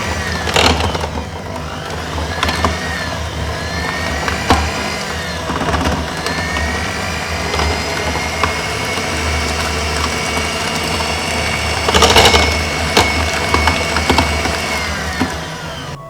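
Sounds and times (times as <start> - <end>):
beaters knocking bowl: 0.0 - 16.0
electric hand mixer running: 0.0 - 16.0.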